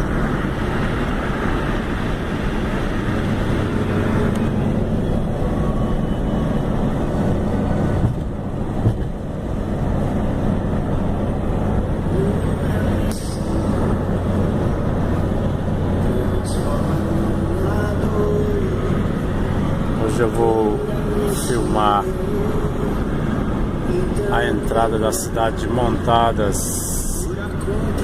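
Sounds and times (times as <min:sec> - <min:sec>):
vehicle engine hum and road noise: 0:00.0 - 0:28.0.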